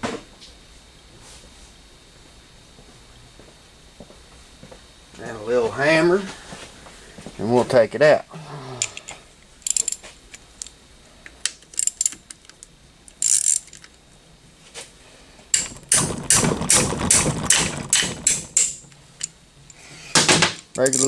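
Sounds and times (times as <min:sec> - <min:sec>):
socket ratchet clicking: 0:08.8 - 0:10.8, 0:11.4 - 0:14.0, 0:20.6 - 0:21.0
metal knocks: 0:15.6 - 0:18.9.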